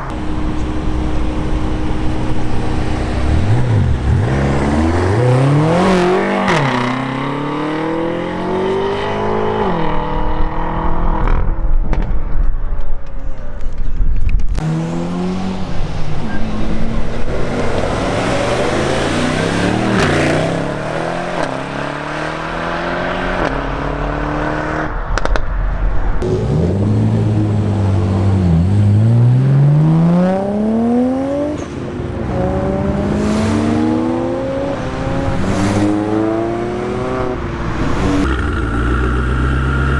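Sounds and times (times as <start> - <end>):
deep low rumble: 0.0 - 5.8, 23.2 - 29.8
car engines revving and accelerating: 0.0 - 13.8, 14.4 - 39.9.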